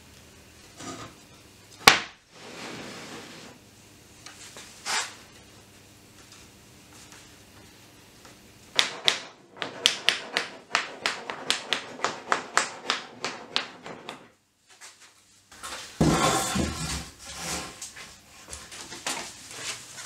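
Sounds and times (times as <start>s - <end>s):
hammer tapping on wood: 8.8s - 14.2s
loud knock and scrape: 16.0s - 17.8s.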